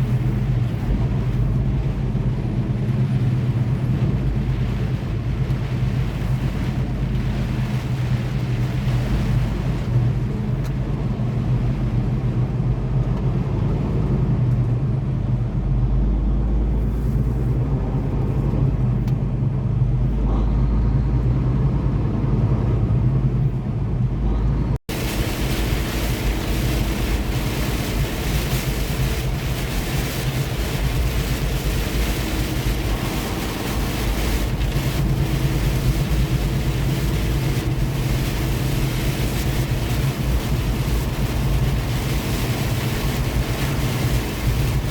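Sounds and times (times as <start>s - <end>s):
rain and road spray hiss: 0.0s - 12.7s, 24.9s - 44.9s
tyre road noise: 0.0s - 44.9s
truck diesel engine running: 24.1s - 44.9s.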